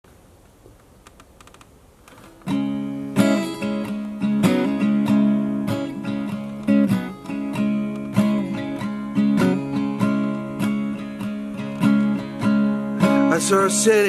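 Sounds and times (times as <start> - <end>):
faint clicks: 0.4 - 2.4
pop song with strummed acoustic guitar: 2.4 - 14.0.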